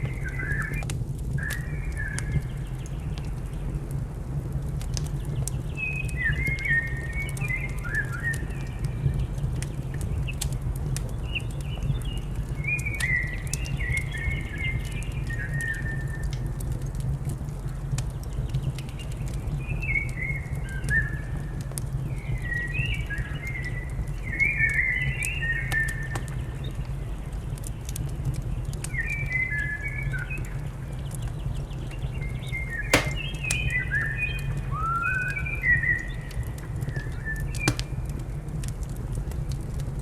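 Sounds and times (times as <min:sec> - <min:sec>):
fire crackling: 0:00.0 - 0:19.3, 0:31.4 - 0:34.7, 0:36.0 - 0:40.0.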